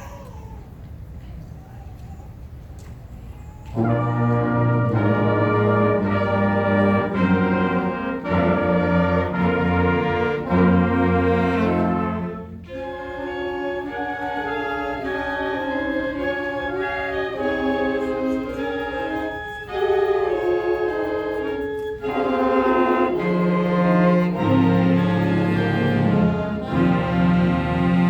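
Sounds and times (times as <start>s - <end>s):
band playing slow chords: 22.4s - 28.0s.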